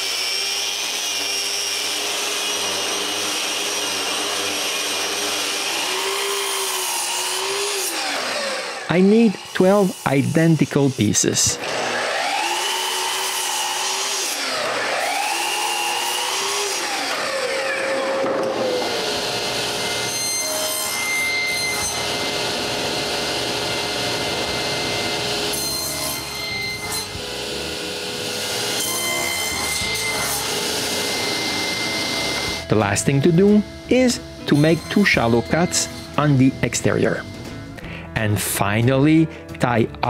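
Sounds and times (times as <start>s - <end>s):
power saw cutting wood: 0.0s - 38.3s.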